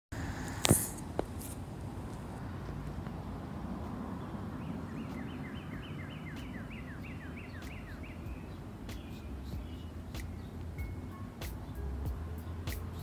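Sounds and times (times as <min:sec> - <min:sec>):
songbird whistling: 0:04.6 - 0:13.0
steady low rumble: 0:06.7 - 0:13.0.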